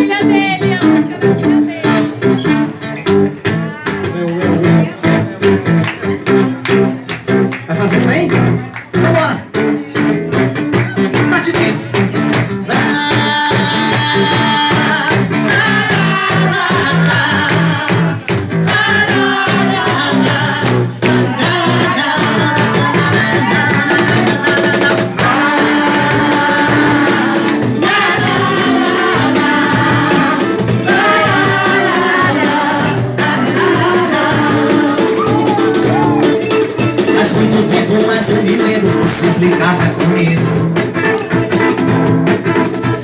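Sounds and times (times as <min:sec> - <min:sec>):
acoustic guitar: 0:00.0 - 0:43.0
drums: 0:00.0 - 0:43.0
person singing: 0:12.7 - 0:40.4.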